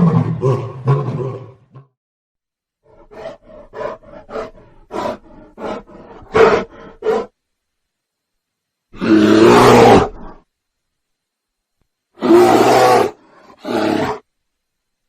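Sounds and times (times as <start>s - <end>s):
big cat roaring: 0.0s - 1.9s, 9.0s - 10.4s, 12.2s - 14.2s.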